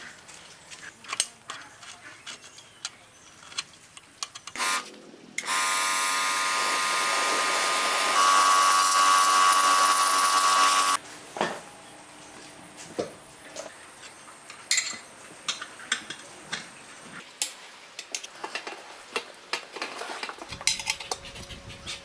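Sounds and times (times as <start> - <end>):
small electric power tool whining: 4.6 - 11.0.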